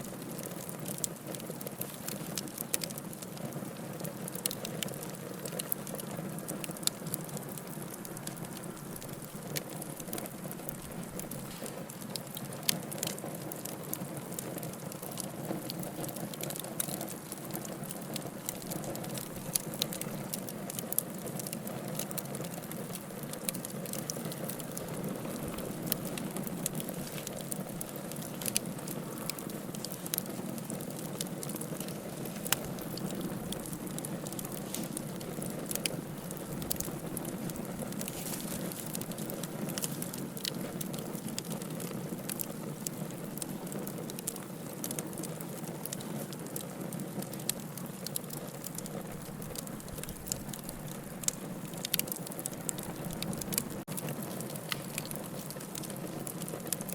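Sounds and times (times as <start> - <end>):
fire burning: 0.0 - 56.9
fire crackling and popping: 0.0 - 56.9.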